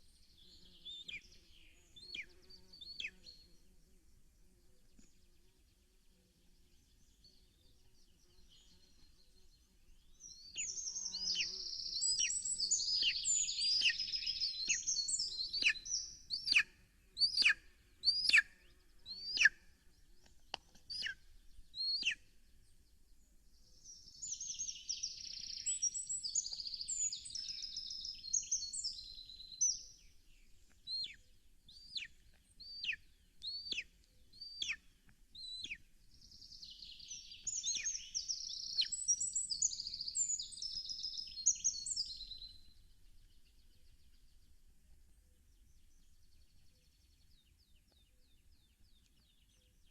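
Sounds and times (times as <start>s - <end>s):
small songbird singing: 0.0s - 49.9s.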